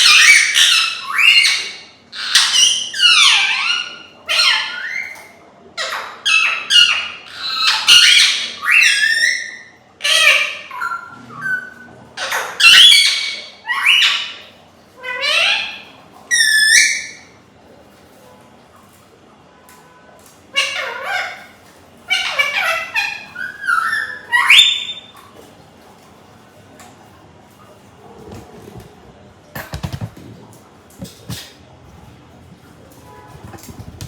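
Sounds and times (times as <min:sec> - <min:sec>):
parrot squawking: 0:00.0 - 0:17.4, 0:20.5 - 0:25.2.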